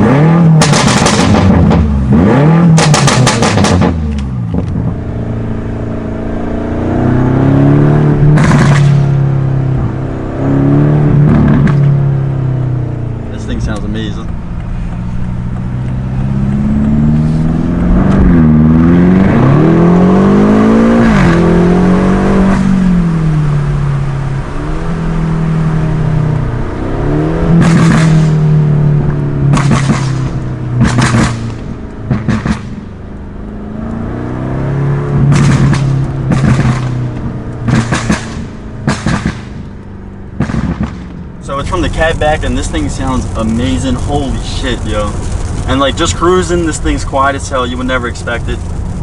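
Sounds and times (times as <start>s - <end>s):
exhaust pops and crackles: 0.0s - 5.0s, 8.2s - 9.2s, 11.2s - 12.0s, 13.3s - 18.5s, 27.5s - 28.5s, 29.1s - 34.0s, 35.2s - 49.0s
car engine revving: 0.0s - 49.0s.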